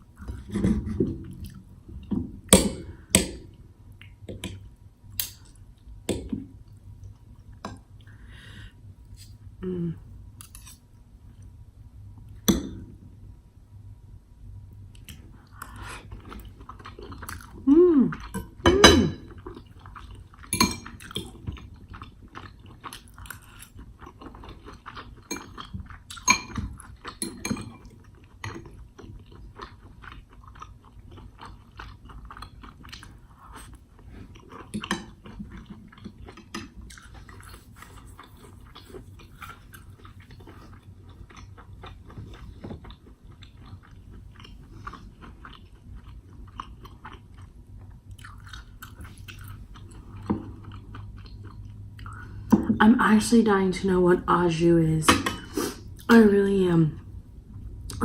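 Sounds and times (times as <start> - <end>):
person chewing food: 0.2 - 4.6, 14.9 - 18.6, 19.2 - 52.6.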